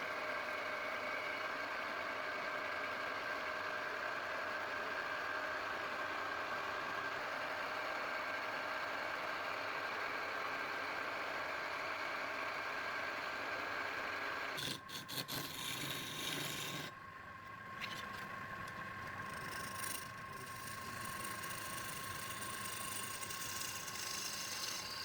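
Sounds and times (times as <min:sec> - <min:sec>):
power tool motor whirring: 0:19.2 - 0:25.0.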